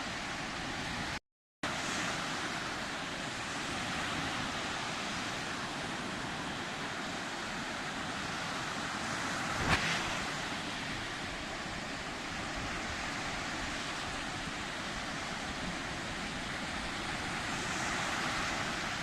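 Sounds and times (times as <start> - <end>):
sea surf washing on shore: 0.0 - 19.0.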